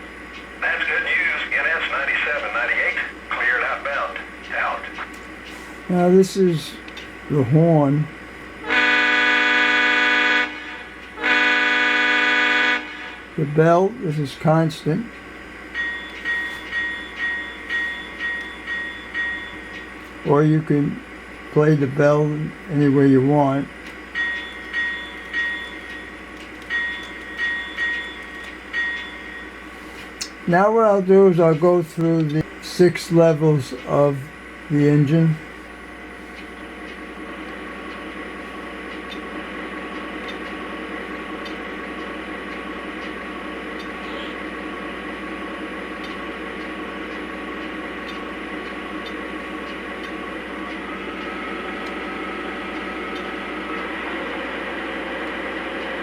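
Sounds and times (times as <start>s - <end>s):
model train diesel engine sound: 0.0s - 56.0s
locomotive bell strikes: 15.7s - 19.9s, 24.1s - 29.6s.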